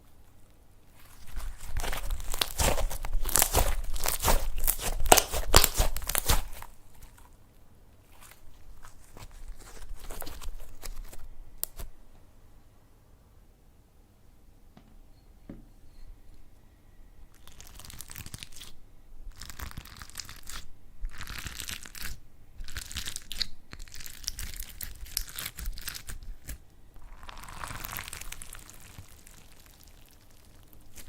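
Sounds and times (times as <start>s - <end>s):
slime crackling and crunching: 0.9s - 7.3s, 8.0s - 11.9s, 17.4s - 31.0s.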